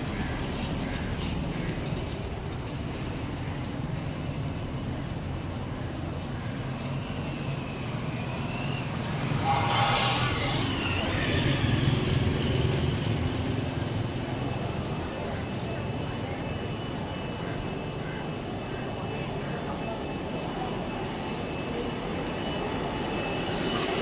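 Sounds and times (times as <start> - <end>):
street traffic rumble: 0.0 - 24.0
vehicle passing close by: 9.2 - 13.7.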